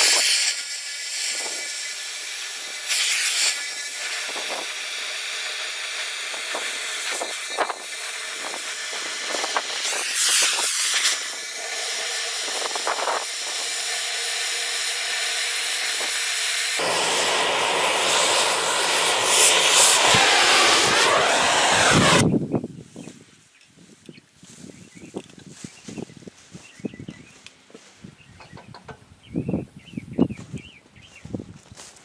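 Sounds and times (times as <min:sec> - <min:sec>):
cutting torch hissing: 0:00.0 - 0:22.3.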